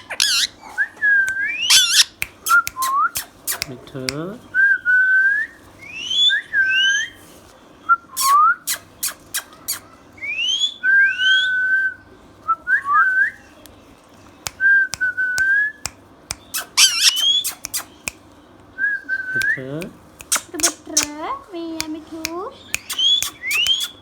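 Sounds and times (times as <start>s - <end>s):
parrot whistling: 0.0s - 3.7s, 16.6s - 18.1s, 22.8s - 24.0s
parrot clicks: 19.4s - 21.2s.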